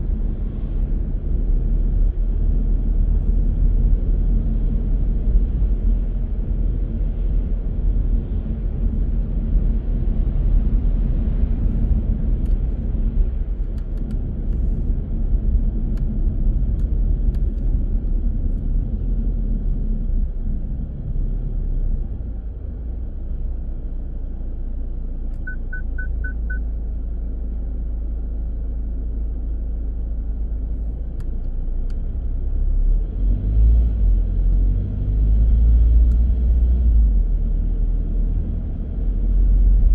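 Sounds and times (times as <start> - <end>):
car road and engine rumble: 0.0 - 39.9
quick high beeps: 25.4 - 26.6.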